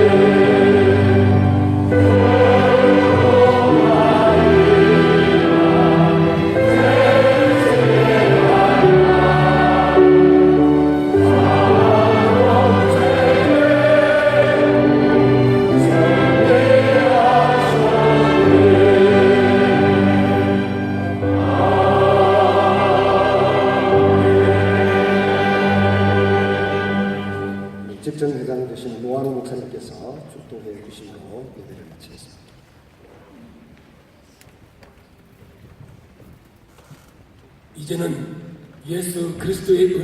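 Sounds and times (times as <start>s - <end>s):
choir singing a hymn: 0.0s - 27.9s
instrumental accompaniment: 0.0s - 28.2s.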